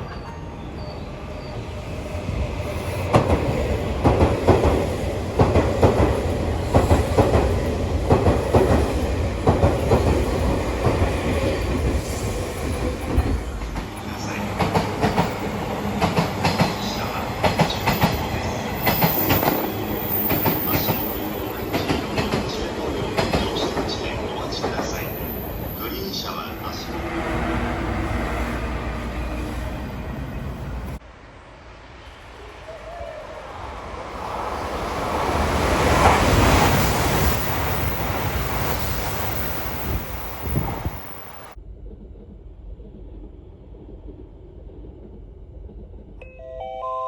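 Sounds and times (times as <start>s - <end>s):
deep train rumble: 0.0s - 46.6s
train wheels clattering: 3.1s - 26.4s.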